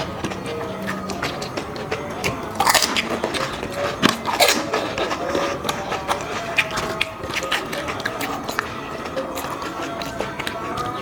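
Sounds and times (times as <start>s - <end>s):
mouth noises: 0.0s - 11.0s
crisp shells crunching when bitten: 2.5s - 8.7s.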